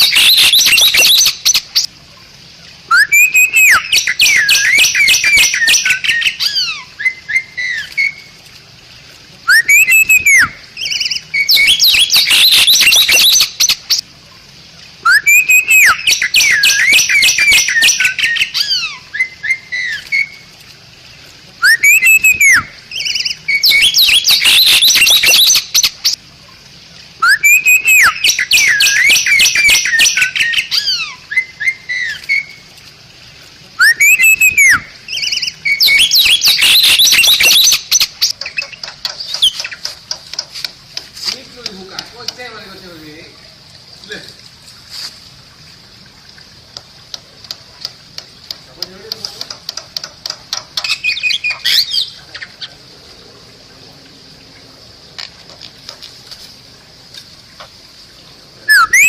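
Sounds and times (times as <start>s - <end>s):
myna whistling and chattering: 2.9s - 6.2s, 9.5s - 13.4s, 15.1s - 18.5s, 21.6s - 22.7s, 27.2s - 32.1s, 33.8s - 39.8s, 58.7s - 59.0s.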